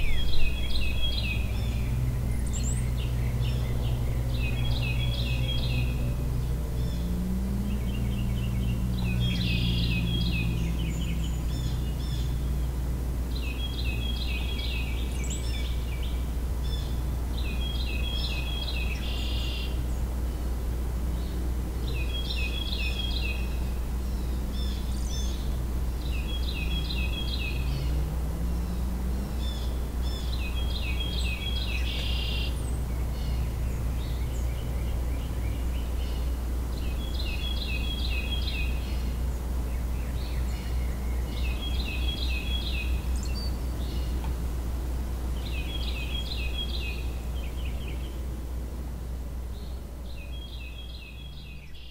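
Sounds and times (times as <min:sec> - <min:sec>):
songbird singing: 0:00.0 - 0:51.9.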